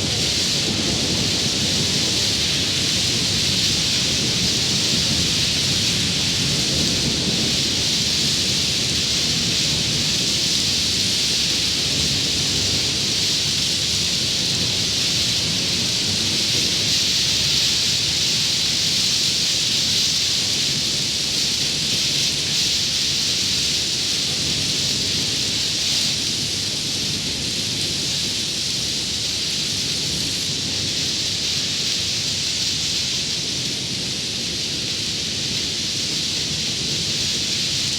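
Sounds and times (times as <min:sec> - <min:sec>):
low rumble of thunder: 0:00.0 - 0:18.8
heavy rain: 0:00.0 - 0:37.9.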